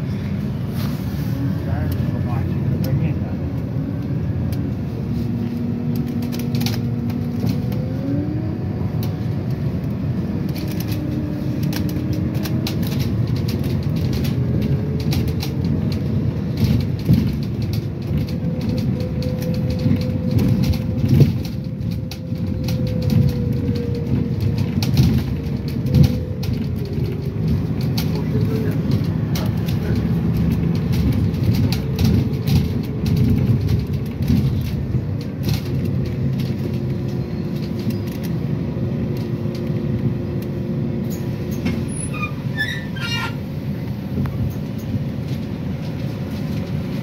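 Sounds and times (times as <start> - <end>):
vehicle running gear rumble: 0.0 - 47.0
rattles and knocks: 10.4 - 38.5.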